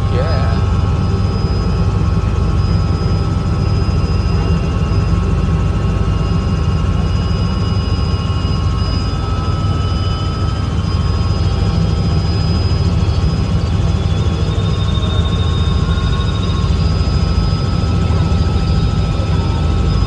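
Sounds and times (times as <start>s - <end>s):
high turbine whine: 0.0s - 12.2s
helicopter rotor rumble: 0.0s - 20.0s.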